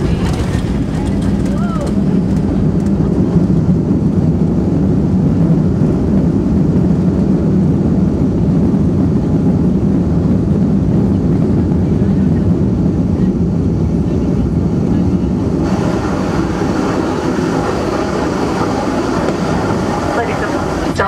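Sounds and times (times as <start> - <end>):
airliner rolling on runway: 0.0 - 21.0.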